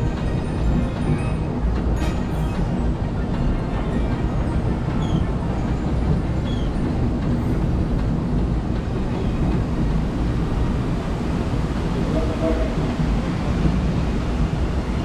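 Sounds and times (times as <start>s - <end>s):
steam train rumbling: 0.0s - 15.0s.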